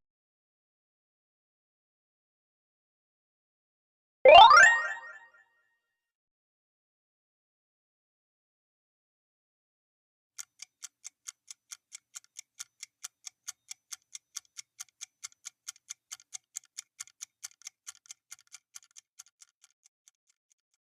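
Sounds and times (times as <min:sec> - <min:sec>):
clock ticking: 0:10.4 - 0:20.4.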